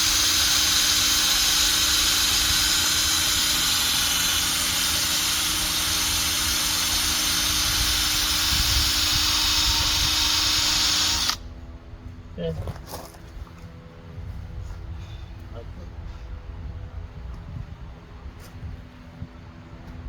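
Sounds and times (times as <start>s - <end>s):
electric drill running: 0.0s - 11.4s.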